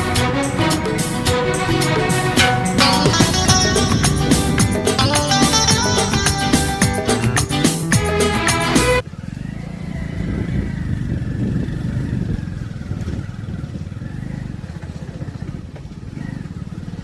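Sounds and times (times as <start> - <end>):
engine running with fast pulse: 0.4 - 7.4.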